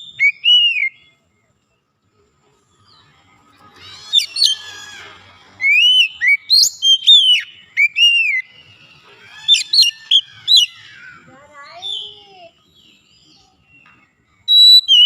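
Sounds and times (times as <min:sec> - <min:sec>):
bird whistling song: 0:00.0 - 0:01.2, 0:03.6 - 0:15.0
bird chirps: 0:00.0 - 0:15.0.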